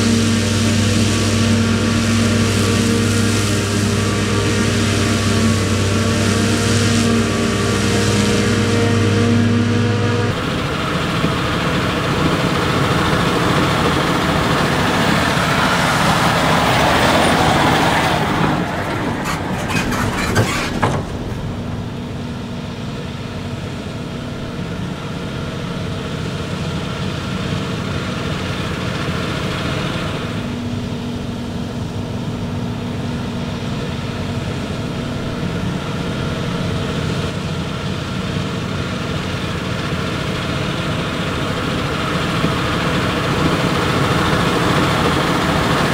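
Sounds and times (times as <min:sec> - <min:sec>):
tractor diesel engines running: 0:00.0 - 0:45.9
clicks and rattles: 0:19.1 - 0:21.7.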